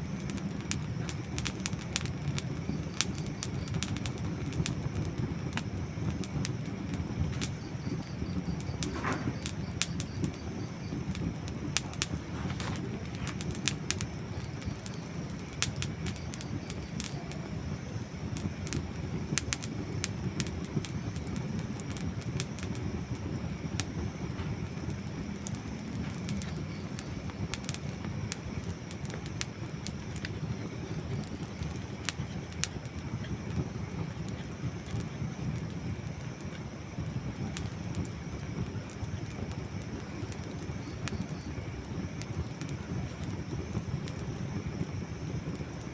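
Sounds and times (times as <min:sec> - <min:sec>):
campfire crackling and popping: 0:00.0 - 0:45.9
low rush of fire: 0:00.0 - 0:45.9.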